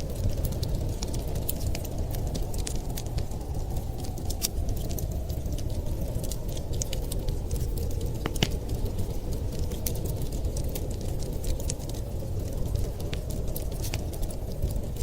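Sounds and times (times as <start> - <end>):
steady low rumble: 0.0 - 15.0
wood fire crackling: 0.0 - 15.0
sharp pops and snaps: 5.6 - 8.9.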